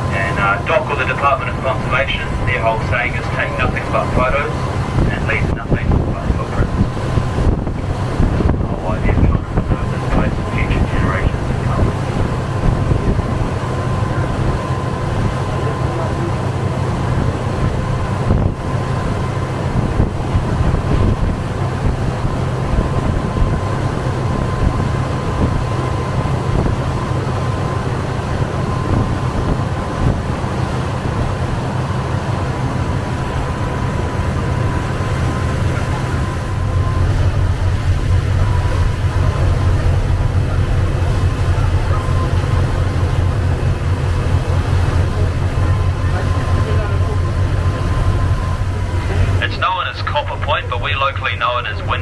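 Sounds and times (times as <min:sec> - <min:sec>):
rushing noise: 0:00.0 - 0:14.9, 0:32.4 - 0:52.0
boat engines droning: 0:00.0 - 0:52.0.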